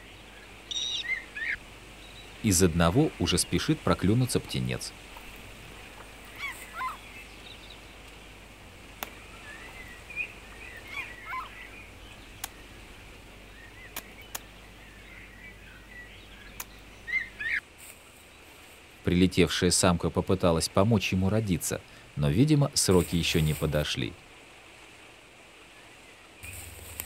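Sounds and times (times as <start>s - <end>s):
short bird calls: 0.0s - 2.4s, 5.8s - 8.0s, 9.1s - 17.6s
faint outdoor hiss: 0.0s - 27.0s
sharp clicks: 13.9s - 14.5s.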